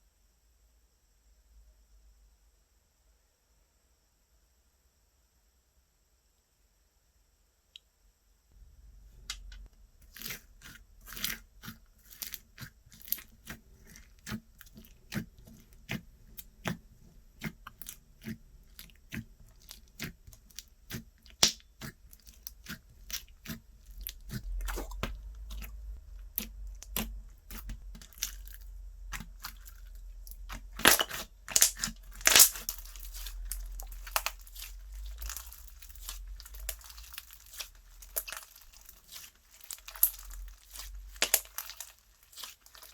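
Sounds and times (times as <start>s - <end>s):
slime crackling and popping: 9.3s - 42.9s.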